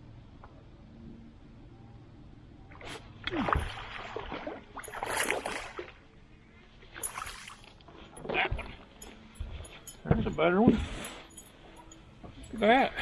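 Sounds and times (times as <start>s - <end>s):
water splashing and sloshing: 2.7s - 12.5s.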